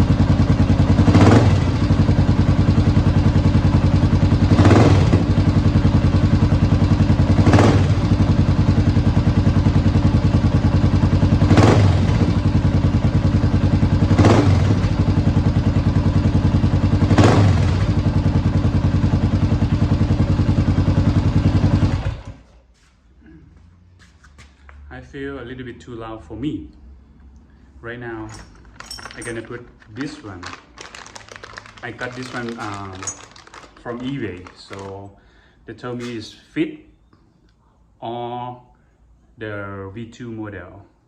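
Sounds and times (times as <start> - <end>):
engine throttle blips: 0.0 - 18.6
motorcycle engine idling: 0.0 - 22.4, 28.4 - 36.2.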